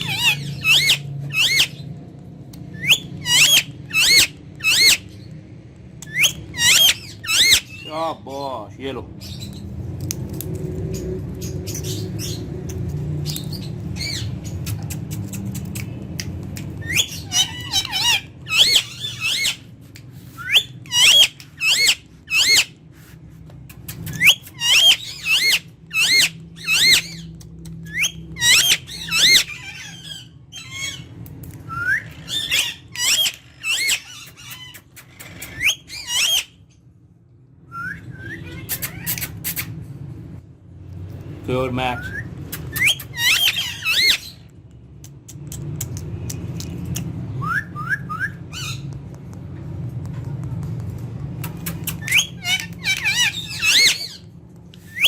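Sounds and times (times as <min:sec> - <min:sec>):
parakeet squawking: 0:00.0 - 0:01.9, 0:02.7 - 0:05.2, 0:06.1 - 0:08.2, 0:16.7 - 0:19.7, 0:20.4 - 0:22.8, 0:23.9 - 0:27.3, 0:27.9 - 0:36.6, 0:38.1 - 0:39.8, 0:41.9 - 0:44.4, 0:51.5 - 0:54.3.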